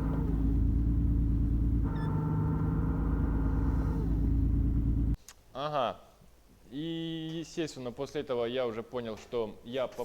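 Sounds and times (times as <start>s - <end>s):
car engine and road rumble: 0.0s - 5.2s
gearbox whine: 0.0s - 5.2s.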